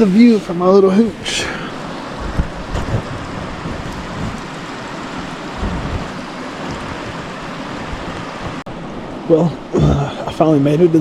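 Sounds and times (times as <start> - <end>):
creek water rushing: 0.0 - 11.0
soft low bumps: 5.5 - 8.6.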